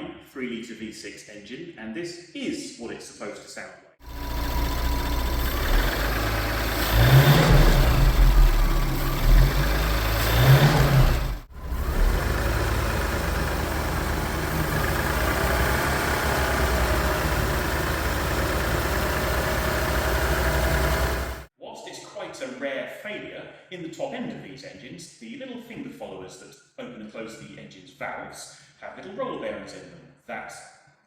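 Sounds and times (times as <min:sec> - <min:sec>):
car engine revving: 0:04.0 - 0:21.5
engine idling: 0:04.0 - 0:21.5.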